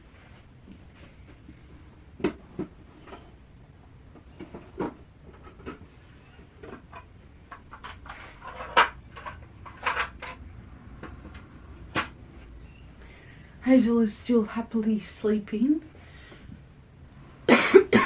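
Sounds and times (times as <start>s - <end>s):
clicks and knocks of small objects: 6.6s - 12.2s.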